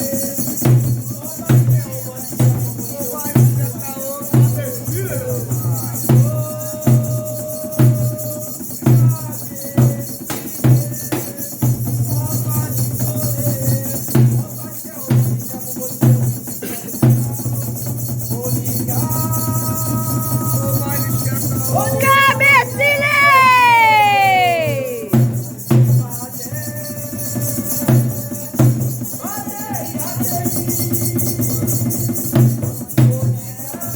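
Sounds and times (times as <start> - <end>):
people singing: 4.2 - 14.3, 18.5 - 25.3
heavy drum beats: 16.0 - 26.0.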